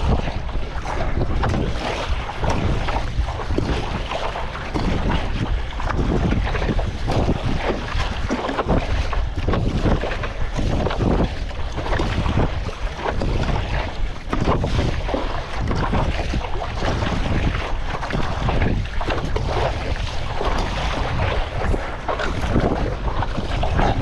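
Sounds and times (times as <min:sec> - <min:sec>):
water splashing: 0:00.0 - 0:24.0
wind buffeting microphone: 0:00.0 - 0:24.0.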